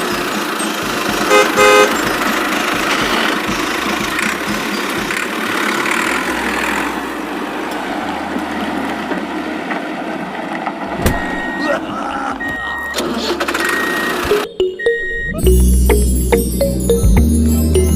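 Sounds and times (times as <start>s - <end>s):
engine running: 0.0s - 17.9s
vehicle horn toots: 1.3s - 2.2s.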